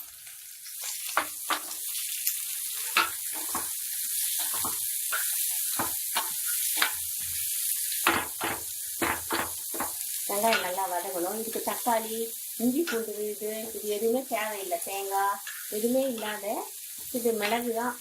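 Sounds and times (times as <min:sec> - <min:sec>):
onions sizzling in hot oil: 0:00.0 - 0:18.0
spoon scraping pan: 0:02.8 - 0:10.8, 0:15.4 - 0:16.4.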